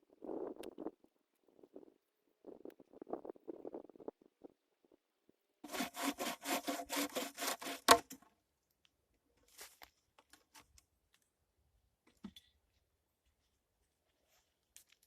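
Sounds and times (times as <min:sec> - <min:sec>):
hand saw cutting wood: 0:05.6 - 0:08.2.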